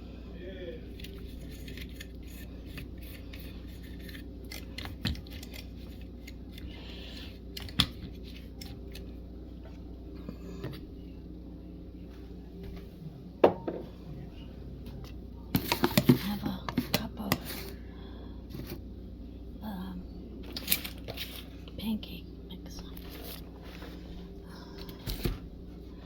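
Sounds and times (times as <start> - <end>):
steady low hum: 0.0 - 26.0
kitchen items clicking and scraping: 0.9 - 9.1, 15.5 - 17.8.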